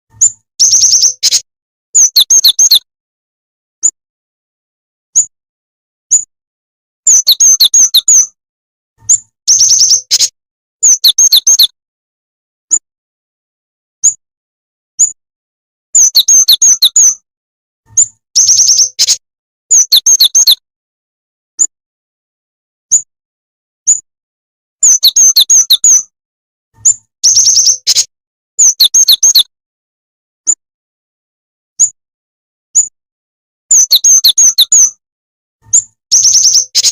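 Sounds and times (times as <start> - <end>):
bird chirping call: 0.1 - 2.9, 6.1 - 6.3, 7.1 - 8.4, 9.0 - 11.8, 14.0 - 14.2, 15.0 - 15.2, 16.0 - 17.2, 17.9 - 20.6, 22.9 - 23.1, 24.8 - 26.1, 26.8 - 29.5, 31.8 - 32.0, 33.7 - 35.0, 35.6 - 36.9.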